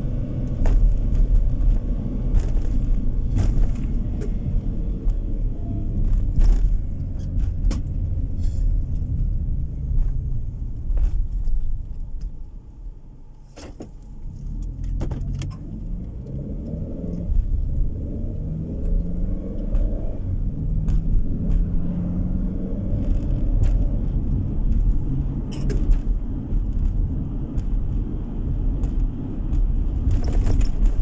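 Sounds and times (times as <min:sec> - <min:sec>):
car engine and tyre noise: 0:00.0 - 0:31.0
clicks and rattles: 0:22.9 - 0:31.0.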